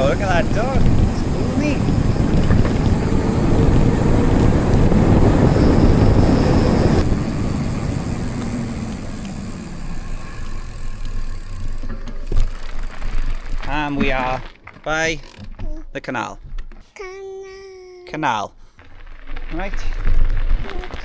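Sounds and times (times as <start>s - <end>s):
wind rushing over microphone: 0.0s - 9.2s
bike tyre rumble: 0.0s - 15.4s, 18.8s - 21.0s.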